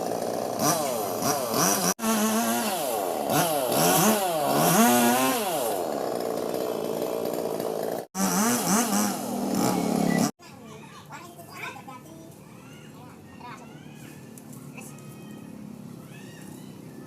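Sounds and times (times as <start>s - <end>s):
chainsaw engine revving: 0.0s - 10.4s.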